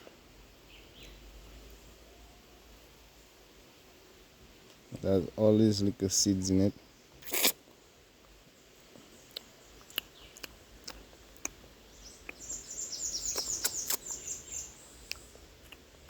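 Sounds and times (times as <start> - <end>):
bird chirping chatter: 8.6 - 15.4.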